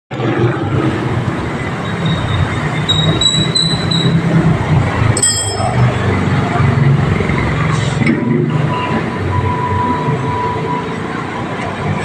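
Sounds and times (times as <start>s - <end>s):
brief high ringing: 5.2s - 6.1s.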